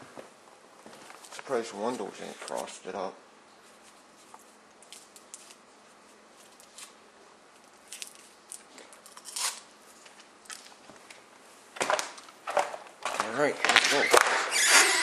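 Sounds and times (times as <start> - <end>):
faint clicks and crackly rustles: 0.8 - 2.7.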